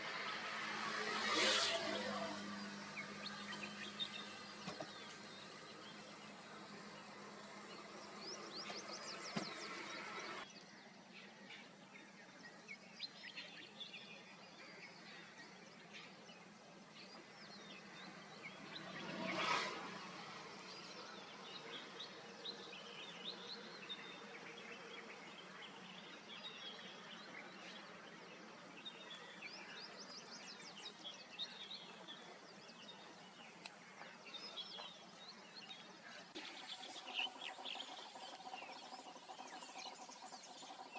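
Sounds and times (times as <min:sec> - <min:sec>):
small birds chirping: 0:00.0 - 0:40.9
insects humming: 0:36.4 - 0:40.9.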